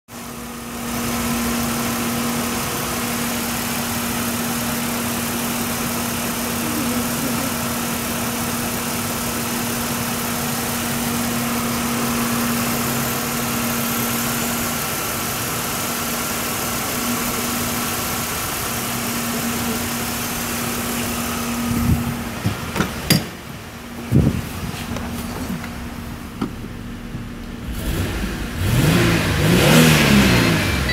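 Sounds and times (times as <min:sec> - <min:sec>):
car engine idling: 0:00.1 - 0:30.9
sharp knocks and clatters: 0:22.4 - 0:23.4.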